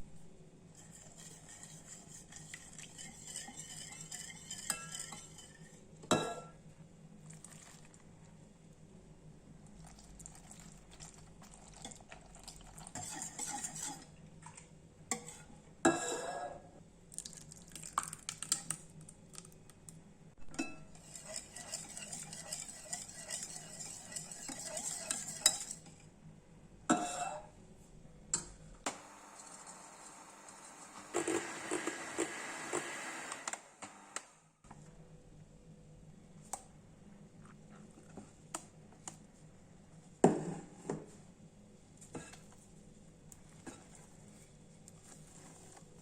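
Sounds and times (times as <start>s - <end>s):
utensil scraping in mixing bowl: 0.8s - 5.8s, 12.7s - 14.1s, 21.0s - 26.0s, 43.5s - 46.0s
utensil clinking against bowl: 2.4s - 6.5s, 20.6s - 26.0s.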